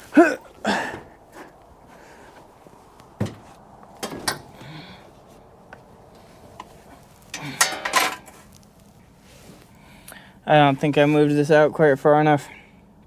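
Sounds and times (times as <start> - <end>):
metal tools clinking and knocking: 7.3 - 8.4.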